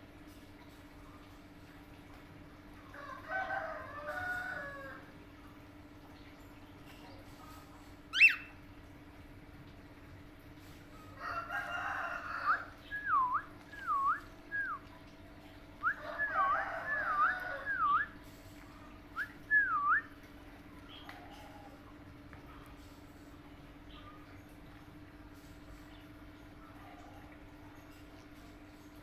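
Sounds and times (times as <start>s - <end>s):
parrot squawk: 8.1s - 8.5s
parrot whistling notes: 8.1s - 8.5s.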